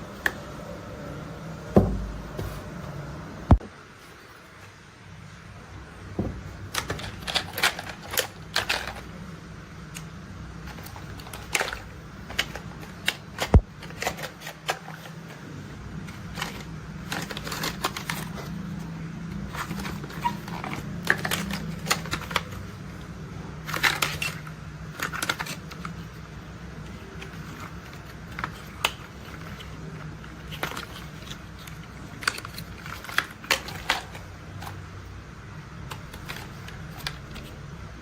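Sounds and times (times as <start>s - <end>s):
steady low hum: 0.0s - 38.0s
plastic toys clicking and rattling: 6.6s - 9.2s, 9.9s - 15.4s, 16.0s - 23.0s, 23.6s - 26.2s, 26.8s - 34.9s, 35.8s - 37.6s.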